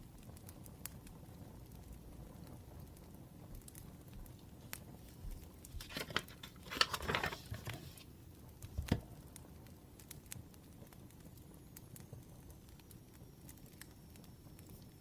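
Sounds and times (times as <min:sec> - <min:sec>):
wood fire crackling: 0:00.0 - 0:15.0
paper rustling: 0:05.1 - 0:08.1.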